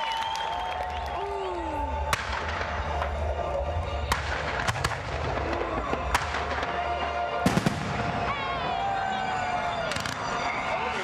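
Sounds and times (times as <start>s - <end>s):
crowd voices: 0.0s - 11.0s
fireworks banging: 4.0s - 8.4s.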